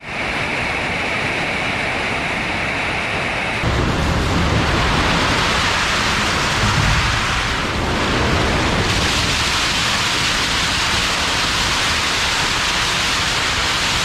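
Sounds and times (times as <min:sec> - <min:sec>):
baler machine running: 0:03.6 - 0:13.2.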